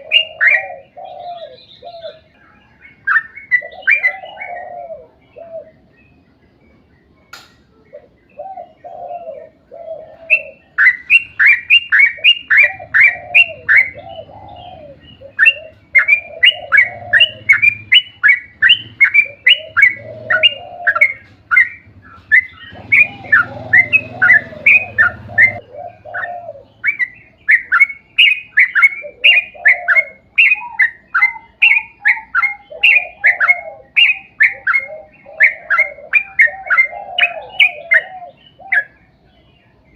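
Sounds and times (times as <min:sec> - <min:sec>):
bird chirping rapidly: 0:00.0 - 0:04.8, 0:10.1 - 0:39.9
bubbling warbled bird phrases: 0:08.8 - 0:38.9.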